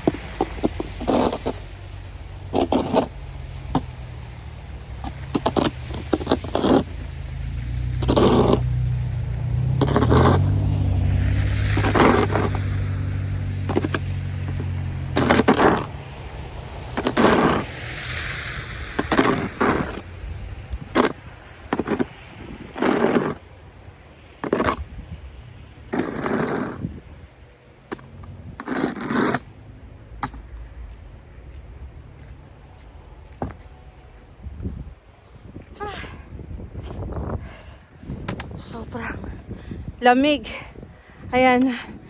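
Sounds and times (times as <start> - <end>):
snow shovel scraping: 0.0 - 23.5, 24.4 - 24.8, 25.9 - 26.9, 27.9 - 29.5
passing vehicle engine hum: 0.0 - 26.0, 29.4 - 42.0.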